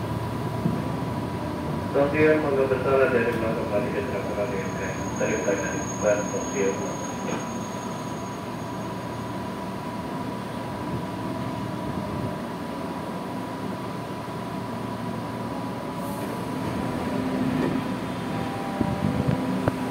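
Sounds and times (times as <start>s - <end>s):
train interior rumble: 0.0s - 19.9s
air hiss of doors opening: 16.0s - 16.5s.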